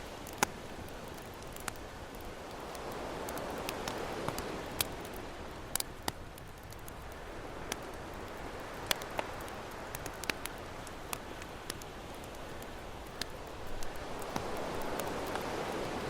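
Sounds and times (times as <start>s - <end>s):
campfire crackling and popping: 0.0s - 16.0s
ocean waves: 7.2s - 16.0s.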